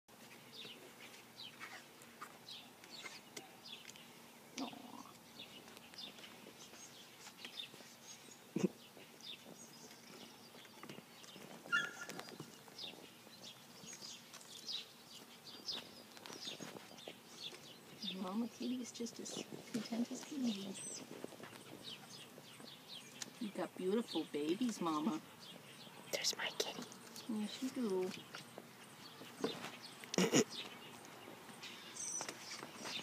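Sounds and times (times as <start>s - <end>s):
faint bird chirps: 2.5s - 19.4s.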